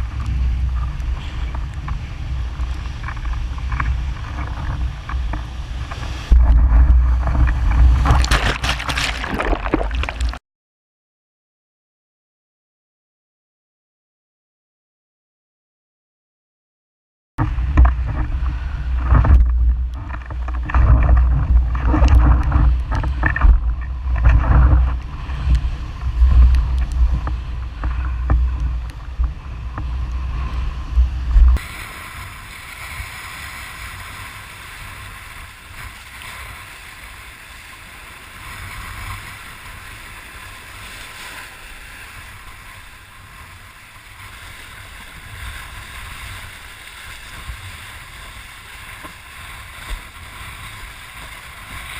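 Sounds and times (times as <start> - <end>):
water rushing and splashing: 0.0 - 10.4, 17.4 - 51.9
wind buffeting the microphone: 0.0 - 10.4, 17.4 - 51.9.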